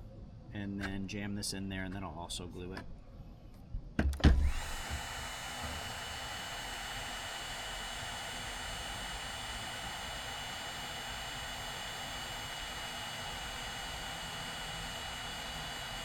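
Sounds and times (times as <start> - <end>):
fan motor high whine: 4.3 - 16.0
heat gun blowing air: 4.3 - 16.0.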